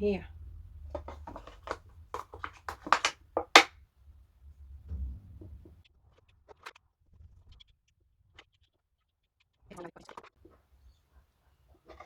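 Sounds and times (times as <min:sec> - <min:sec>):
tools clicking and tapping: 0:01.0 - 0:03.7.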